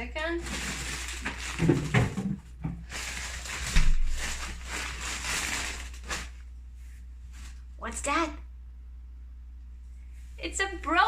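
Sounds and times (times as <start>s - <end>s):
rustling and rummaging food: 0.0s - 7.7s.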